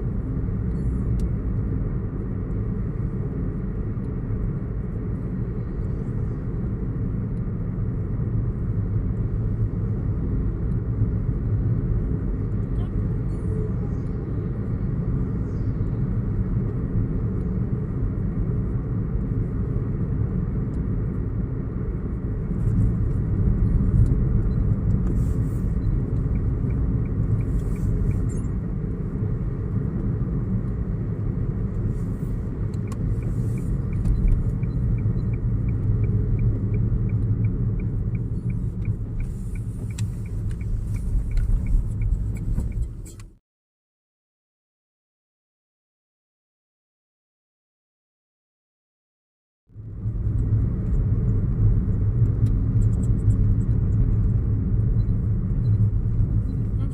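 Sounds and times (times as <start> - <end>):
car road rumble: 0.0 - 43.4, 49.7 - 56.9
faint regular ticking: 32.7 - 43.2.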